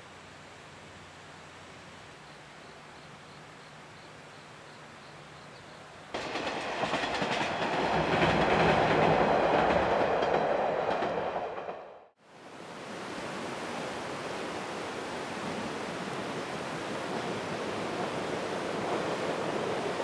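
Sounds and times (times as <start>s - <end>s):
diesel railcars passing: 6.1s - 12.2s
wheels clacking over rail joints: 6.2s - 11.9s.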